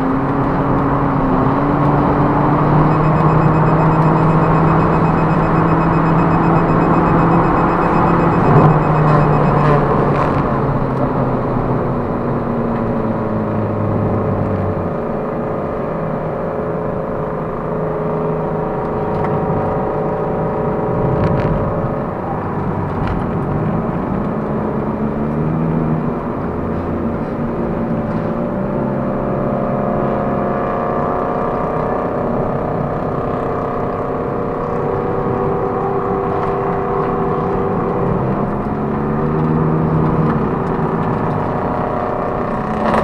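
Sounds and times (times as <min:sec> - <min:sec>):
car engine drone: 0:00.0 - 0:43.0
road and tyre noise: 0:00.0 - 0:43.0.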